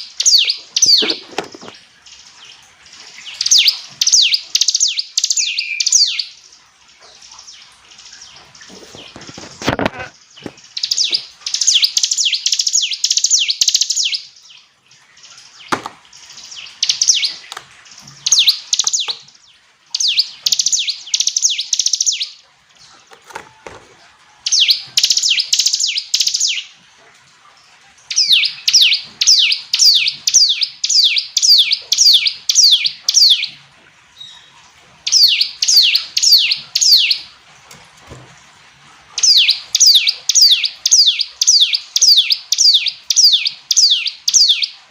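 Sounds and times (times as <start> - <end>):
bird singing rapid high notes: 28.1 - 33.6, 35.1 - 37.3, 39.2 - 44.8.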